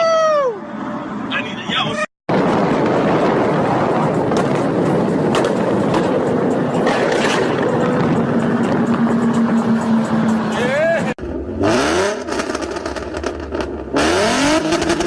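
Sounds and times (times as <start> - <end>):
exhaust cracks: 2.3 - 15.0
sports car engine exhaust: 2.4 - 15.0.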